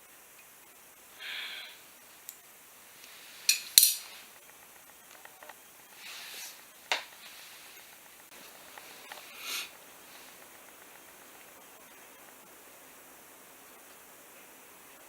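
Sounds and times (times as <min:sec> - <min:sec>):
metal parts scraping: 0:03.4 - 0:04.3
metal tools clinking: 0:03.4 - 0:04.3.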